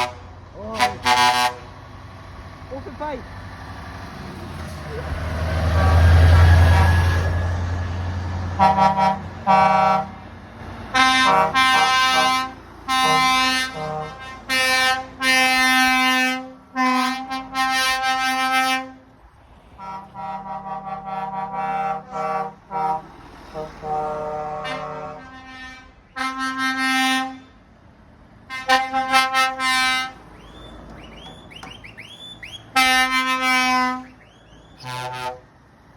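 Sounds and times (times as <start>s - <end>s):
truck air horn blasts: 0.0s - 1.8s, 5.2s - 27.6s, 28.4s - 35.8s
truck engine rumble: 0.0s - 35.9s.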